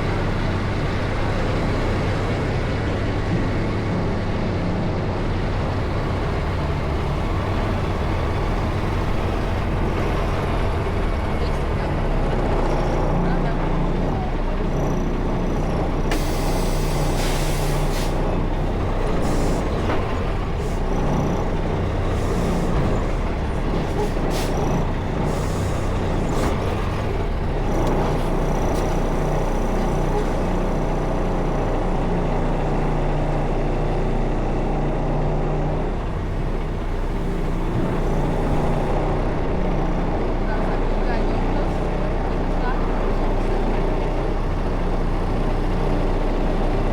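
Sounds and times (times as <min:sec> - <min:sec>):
truck diesel engine running: 0:00.0 - 0:46.9
air brake hiss: 0:16.1 - 0:18.2.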